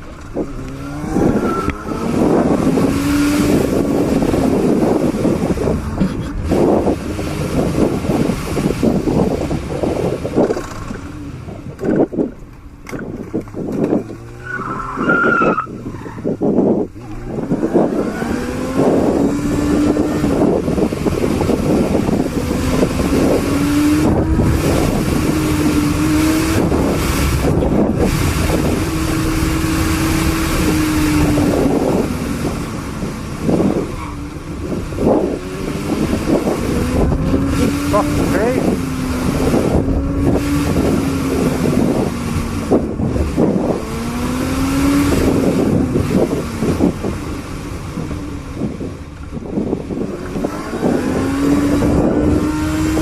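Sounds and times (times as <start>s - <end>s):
road and wind noise: 0.0s - 53.0s
vehicle engine: 0.0s - 53.0s.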